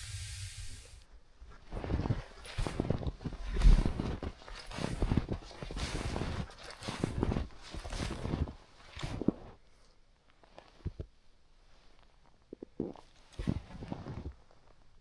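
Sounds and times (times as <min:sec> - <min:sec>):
snowshoes crunching snow: 0:02.7 - 0:08.5.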